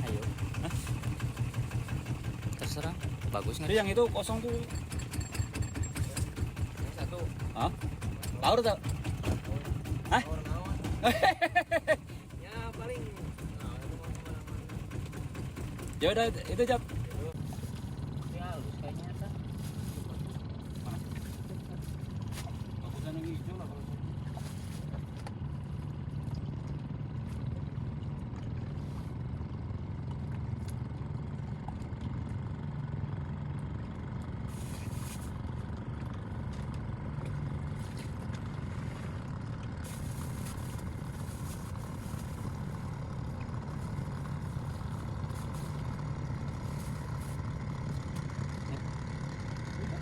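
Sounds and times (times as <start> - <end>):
small boat engine droning: 0.0 - 50.0.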